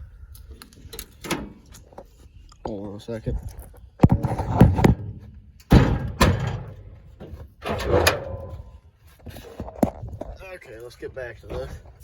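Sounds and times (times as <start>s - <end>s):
metal clunks and bangs from truck hood: 4.0s - 8.8s.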